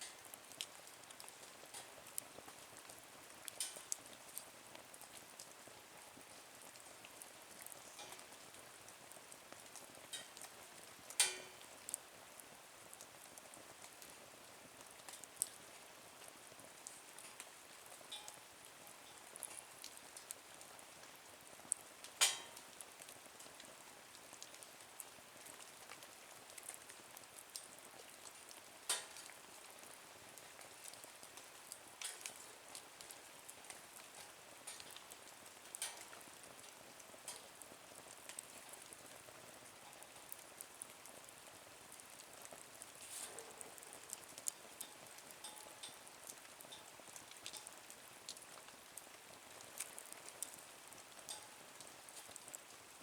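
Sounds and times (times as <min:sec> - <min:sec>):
wood fire crackling: 0:00.0 - 0:53.0
fire pops: 0:03.5 - 0:04.0, 0:11.1 - 0:11.7, 0:22.0 - 0:22.7, 0:28.9 - 0:29.4, 0:43.0 - 0:46.0.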